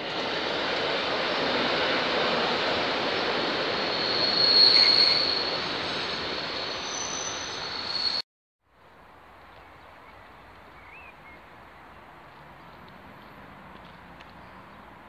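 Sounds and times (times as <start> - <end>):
train wheel squeal: 1.2 - 8.2
quiet outdoor ambience: 8.6 - 15.0.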